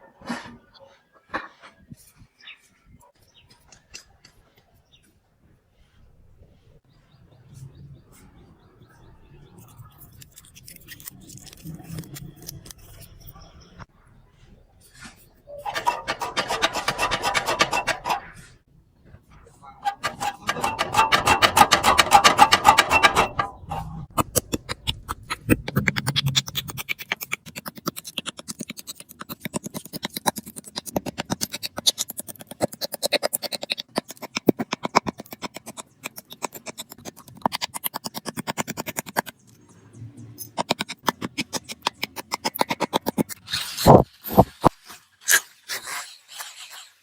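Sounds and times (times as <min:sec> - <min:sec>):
hand tool scraping metal: 0:09.6 - 0:13.4, 0:14.9 - 0:18.6, 0:19.5 - 0:39.5, 0:40.4 - 0:46.9.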